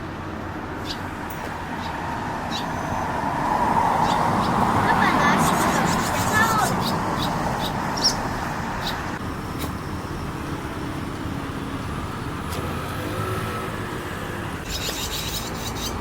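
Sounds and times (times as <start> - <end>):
road traffic rumble: 0.0 - 16.0
car passing by: 1.5 - 9.8, 11.6 - 14.7.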